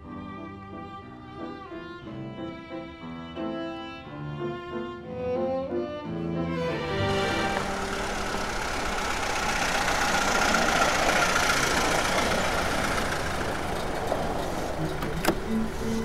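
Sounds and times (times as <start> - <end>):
old car engine rumbling: 6.8 - 16.0.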